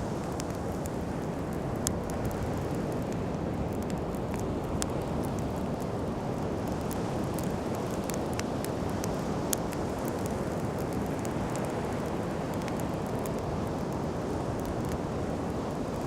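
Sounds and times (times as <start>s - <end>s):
campfire crackling and popping: 0.0s - 16.0s
wind: 0.0s - 16.0s.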